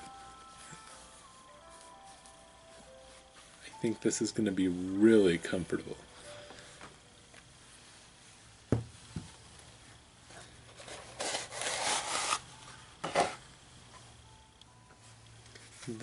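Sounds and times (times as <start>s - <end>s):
shoe handling knocks: 8.7s - 9.3s.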